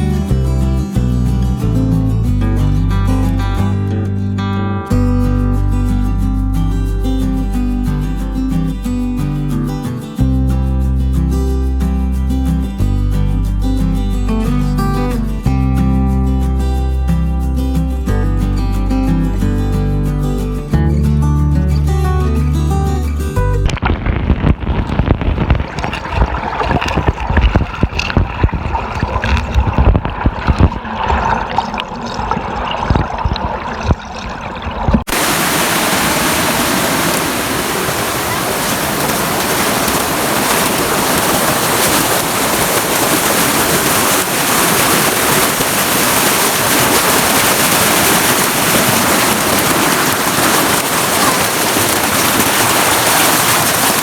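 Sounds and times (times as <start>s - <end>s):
muffled choppy water: 23.6s - 54.0s
waterfall rushing: 35.1s - 54.0s.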